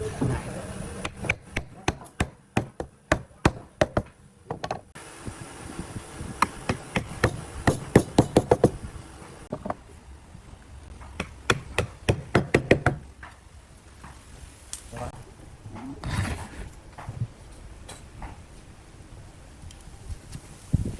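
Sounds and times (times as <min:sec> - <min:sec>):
hammering on wood: 0:01.0 - 0:04.9, 0:06.4 - 0:08.8, 0:11.0 - 0:13.4.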